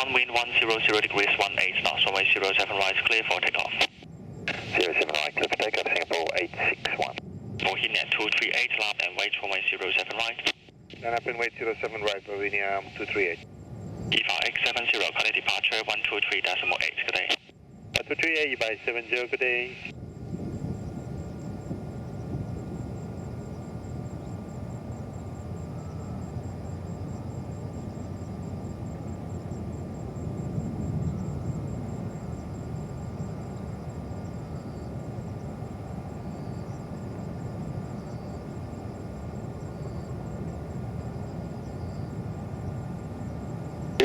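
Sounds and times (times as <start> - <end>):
jet engine rumble: 0.0 - 44.0.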